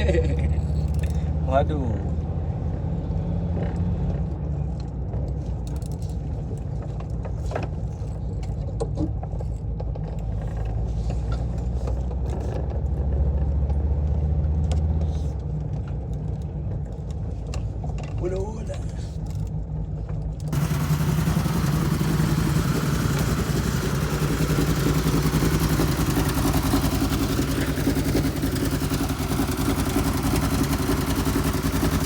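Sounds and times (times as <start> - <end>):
light clinks and rattles: 0.2 - 1.3, 4.7 - 11.7
van engine drone inside cabin: 15.4 - 32.0.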